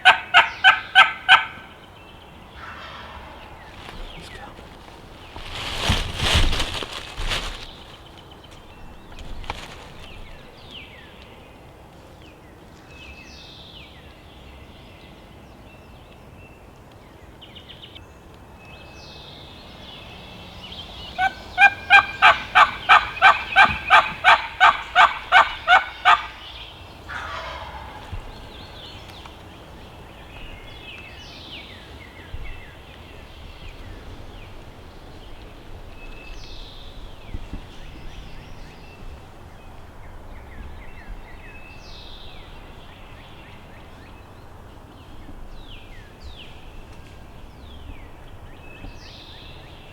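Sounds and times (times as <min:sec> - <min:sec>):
turkey yelping: 0:00.0 - 0:01.7, 0:21.2 - 0:26.4, 0:27.1 - 0:28.1
faint songbird chirps: 0:00.0 - 0:49.9.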